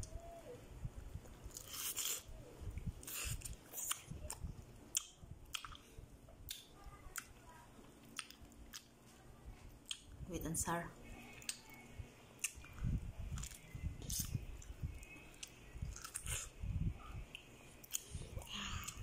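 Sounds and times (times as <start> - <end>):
person chewing juicy fruit: 1.5 - 7.3, 7.9 - 9.0, 11.3 - 11.8, 12.4 - 16.6.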